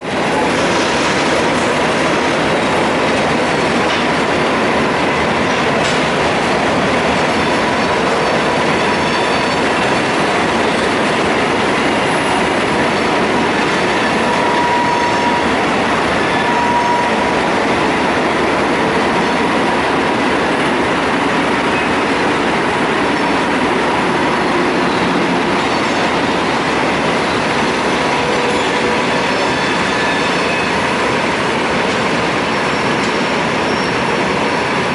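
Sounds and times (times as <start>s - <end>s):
freight train rumbling on rails: 0.0s - 34.9s
train wheel squeals: 7.1s - 11.0s, 11.8s - 18.2s, 24.1s - 31.2s, 31.9s - 34.8s.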